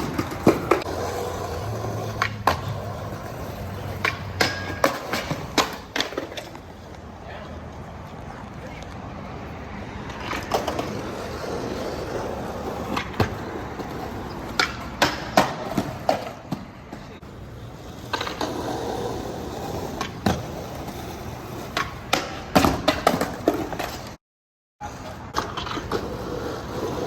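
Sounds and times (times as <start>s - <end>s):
skateboard clacks and knocks: 0.0s - 6.6s, 10.1s - 17.1s, 17.9s - 24.2s
skateboard wheels rolling on wet pavement: 0.0s - 24.2s, 24.8s - 27.0s.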